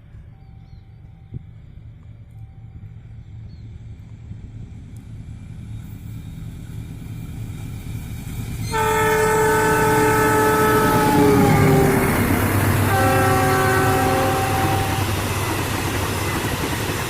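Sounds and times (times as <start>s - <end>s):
locomotive rumble: 0.0s - 17.0s
locomotive horn blast: 8.6s - 15.5s.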